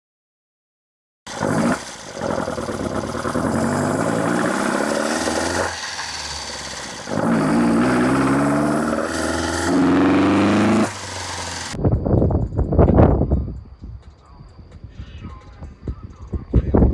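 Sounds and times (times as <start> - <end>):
car engine revving: 1.3 - 11.8.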